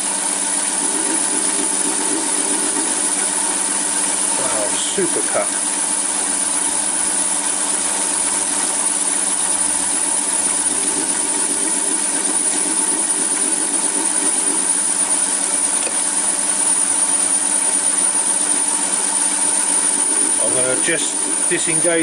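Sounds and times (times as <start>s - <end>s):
high whine: 0.0s - 22.0s
metal lathe cutting: 0.0s - 22.0s.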